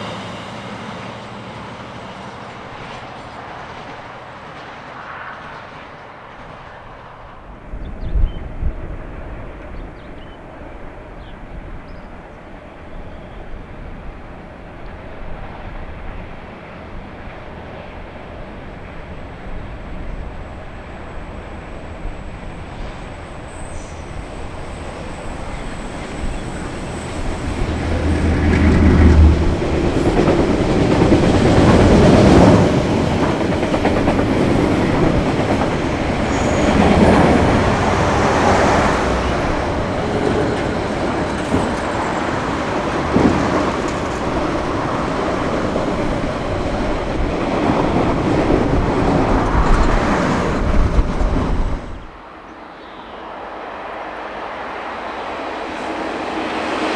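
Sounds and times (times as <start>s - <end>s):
train passing: 0.0s - 56.9s
wheels clattering over rail joints: 18.9s - 52.2s.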